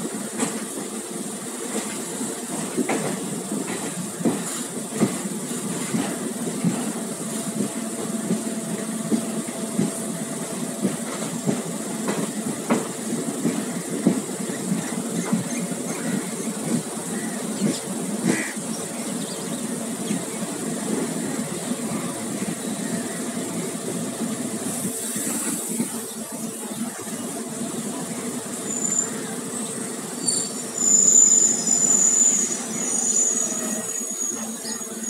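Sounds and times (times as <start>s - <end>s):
train wheels rumbling: 0.0s - 35.0s
high-pitched wheel squeal: 30.2s - 35.0s.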